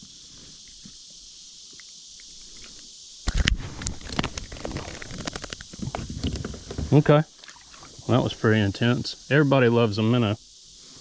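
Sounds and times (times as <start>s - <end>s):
high insect drone: 0.0s - 11.0s
knocks and thumps on a kayak: 3.5s - 7.1s.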